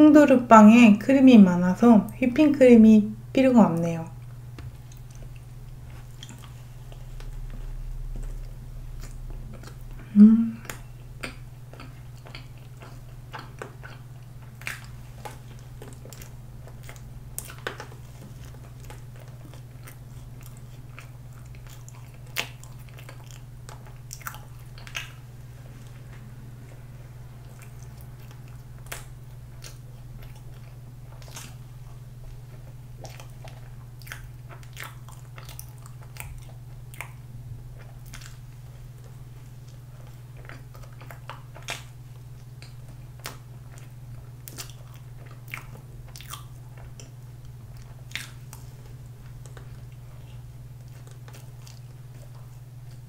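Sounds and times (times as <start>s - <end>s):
low hum: 1.8s - 12.3s, 22.9s - 34.0s
mouth smacks while chewing: 4.6s - 25.2s, 27.5s - 37.2s, 37.8s - 53.0s.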